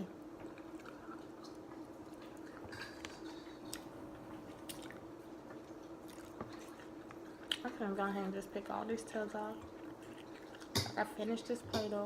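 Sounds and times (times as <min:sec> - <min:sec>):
faint steady hum: 0:00.0 - 0:12.0
person chewing food: 0:00.2 - 0:07.8, 0:09.5 - 0:11.1.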